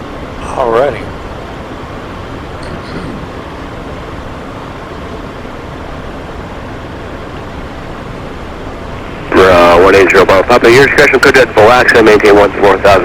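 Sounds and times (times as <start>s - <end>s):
jet cockpit engine and airflow noise: 0.0s - 13.0s.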